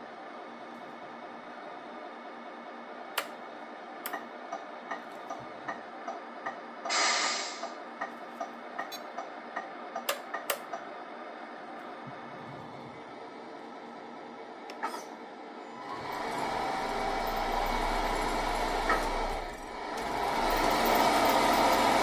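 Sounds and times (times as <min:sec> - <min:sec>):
simulated diesel engine hum: 0:00.0 - 0:22.0
short hiss of air: 0:06.9 - 0:07.8.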